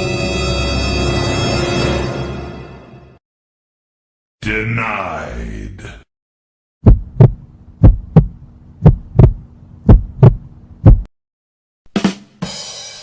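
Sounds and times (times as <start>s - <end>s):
heartbeat thumps: 6.8s - 11.1s
steady low hum: 6.8s - 11.1s.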